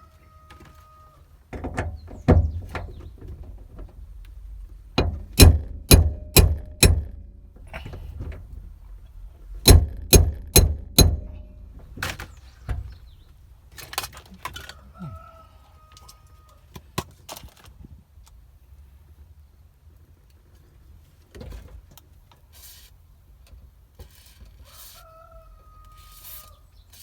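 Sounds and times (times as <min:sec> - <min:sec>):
sharp knocks: 0:01.7 - 0:03.0, 0:05.0 - 0:08.4, 0:09.6 - 0:13.0.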